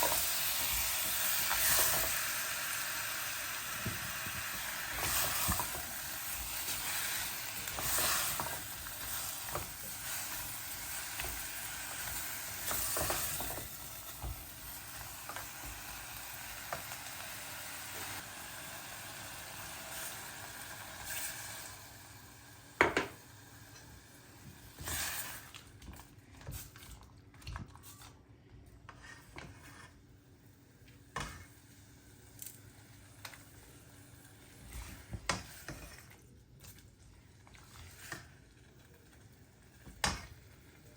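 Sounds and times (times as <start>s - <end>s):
food sizzling in a pan: 0.0s - 25.6s.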